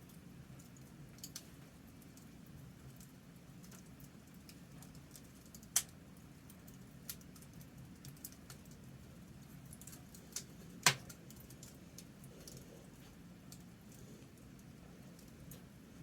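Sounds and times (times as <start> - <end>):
low steady hum: 0.0 - 16.0
wood fire crackling: 0.0 - 16.0.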